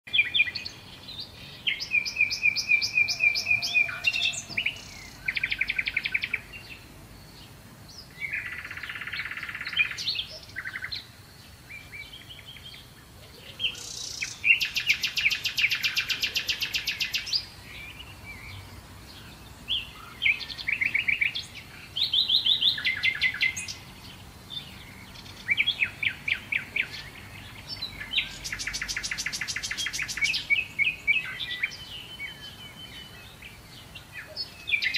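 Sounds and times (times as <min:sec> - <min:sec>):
birds singing trills: 0:00.1 - 0:34.9.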